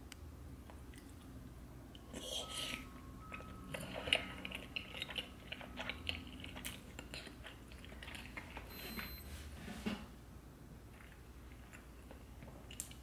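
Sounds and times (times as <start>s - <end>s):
person chewing and smacking: 0.6s - 1.4s, 2.0s - 8.7s, 10.9s - 13.0s.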